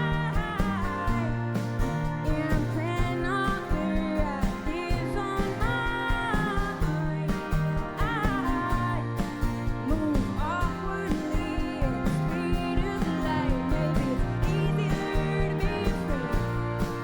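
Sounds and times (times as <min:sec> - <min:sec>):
live country-rock band: 0:00.0 - 0:17.0
person singing: 0:00.0 - 0:17.0.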